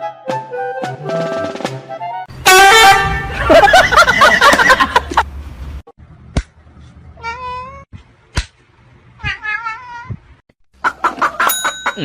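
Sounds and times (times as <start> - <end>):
cat meowing: 7.2 - 7.9, 9.2 - 10.2.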